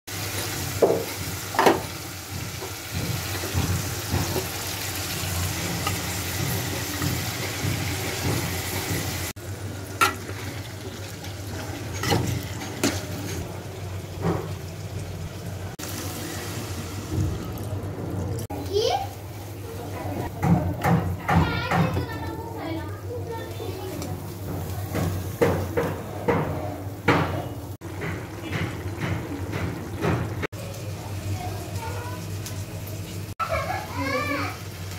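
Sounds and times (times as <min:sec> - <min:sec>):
green beans sizzling in oil: 0:00.1 - 0:14.2, 0:15.8 - 0:17.3.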